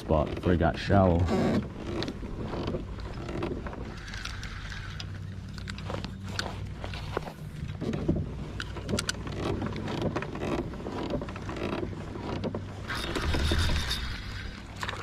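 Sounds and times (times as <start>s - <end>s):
knocks and clicks of gear handling: 5.6s - 12.7s.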